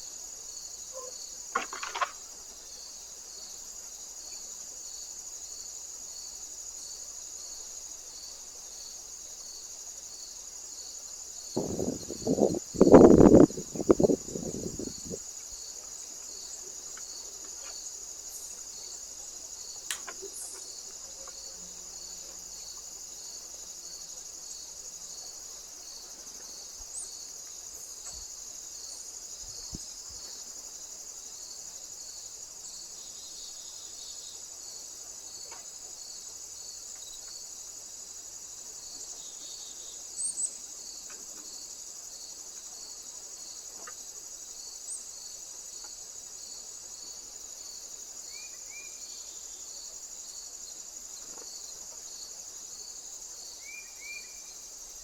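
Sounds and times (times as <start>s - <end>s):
insect chirping: 0.0s - 55.0s
insects chirring: 0.0s - 55.0s
faint clicks: 19.8s - 20.6s.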